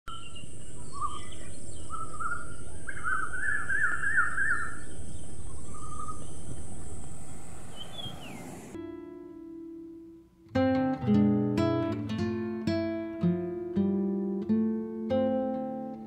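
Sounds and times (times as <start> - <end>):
songbirds singing: 0.1 - 8.8
low outdoor rush: 0.2 - 8.8.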